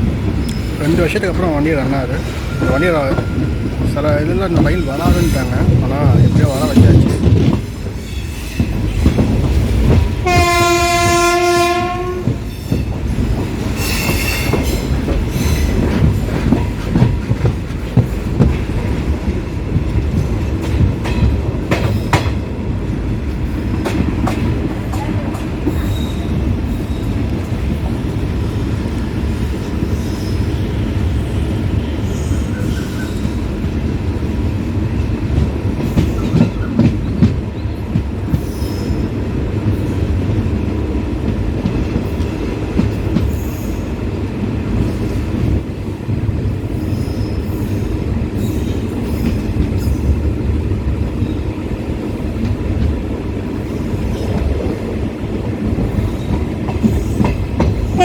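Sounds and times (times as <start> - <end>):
train coaches rumbling: 0.0 - 58.0
rail-joint clicks: 0.1 - 58.0
train wheel squeal: 0.4 - 1.0, 2.1 - 3.8, 7.8 - 9.5, 12.3 - 16.7, 25.6 - 27.3, 29.5 - 33.6, 35.9 - 39.2, 43.2 - 43.9, 46.7 - 50.2
locomotive horn: 10.2 - 12.4.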